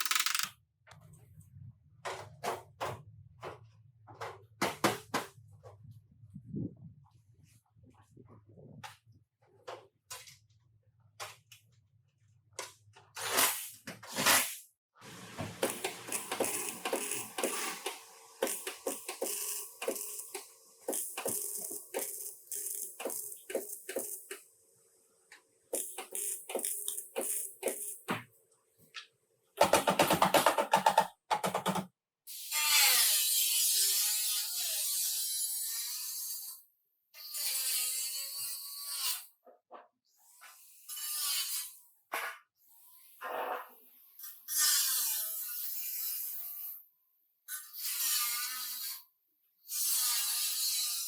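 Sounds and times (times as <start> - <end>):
rapid ratchet-like clicking: 0.0 - 0.5, 15.6 - 24.4
workshop tool hissing: 15.1 - 24.4.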